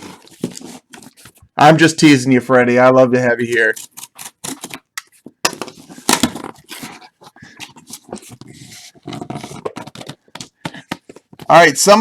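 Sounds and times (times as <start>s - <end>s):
cardboard packaging rustling: 0.0s - 1.6s, 3.4s - 11.7s.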